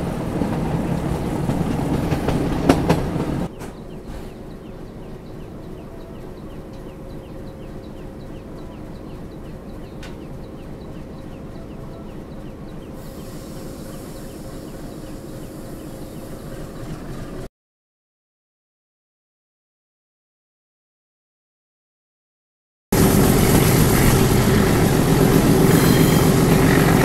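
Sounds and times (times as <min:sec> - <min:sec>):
bird chirping: 0:02.2 - 0:17.5.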